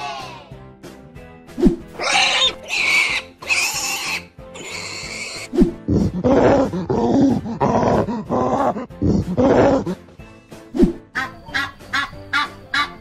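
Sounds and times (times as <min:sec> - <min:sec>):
background music: 0:00.0 - 0:13.0
high noisy animal cries: 0:02.0 - 0:05.5, 0:11.2 - 0:13.0.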